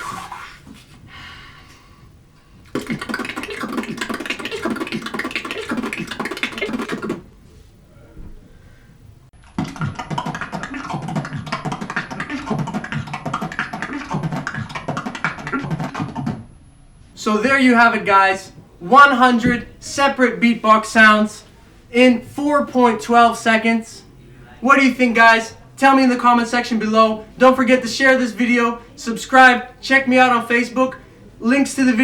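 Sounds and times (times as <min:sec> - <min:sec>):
rapid beatboxing: 0:02.7 - 0:07.3, 0:09.6 - 0:16.4.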